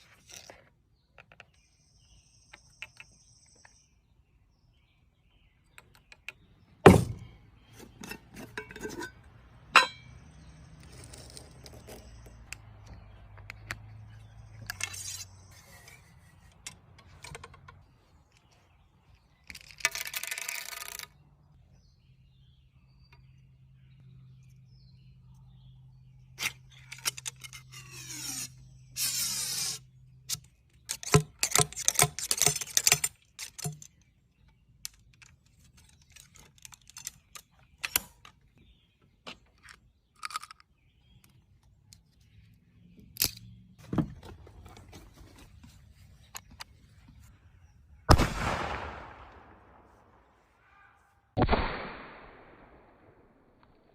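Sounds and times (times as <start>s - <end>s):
handling clicks and knocks: 5.7s - 10.2s, 15.8s - 18.6s, 30.3s - 47.4s
rifle shot with echo: 48.1s - 50.3s, 51.4s - 53.6s.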